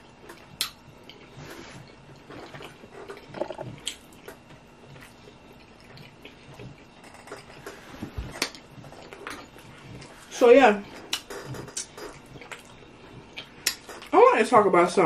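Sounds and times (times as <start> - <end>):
wet chewing: 0.2 - 7.8, 10.9 - 14.1.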